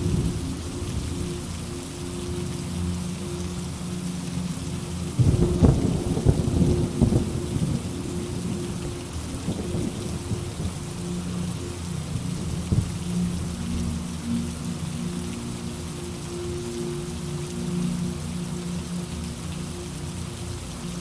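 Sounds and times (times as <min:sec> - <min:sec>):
heavy rain: 0:00.0 - 0:21.0
thunder rumbling: 0:05.2 - 0:11.0.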